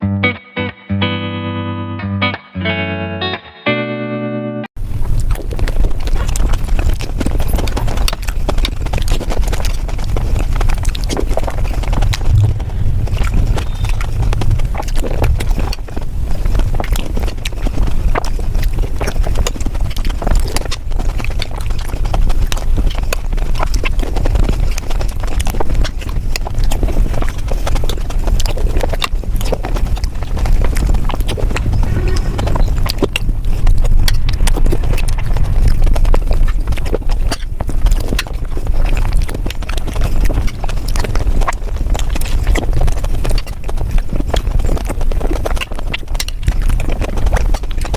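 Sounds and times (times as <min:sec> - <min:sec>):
rapid crunching and chewing: 0:04.8 - 0:47.9.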